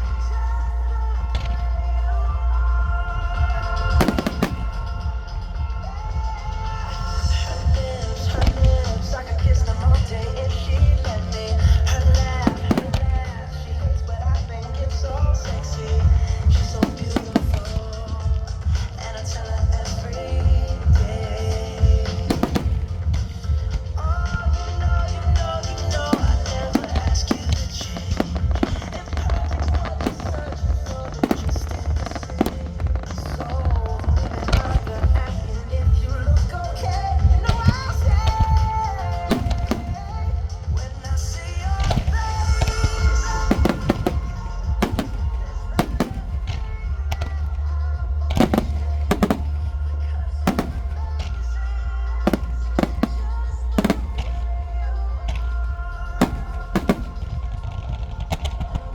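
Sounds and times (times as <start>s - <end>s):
music playing: 0.0s - 58.9s
fireworks banging and crackling: 3.4s - 58.9s
low rumble: 39.3s - 58.9s.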